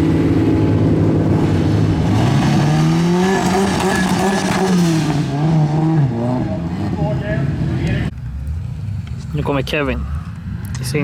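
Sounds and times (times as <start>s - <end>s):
car engine revving: 0.0s - 8.9s
tyre squeal: 3.2s - 5.0s.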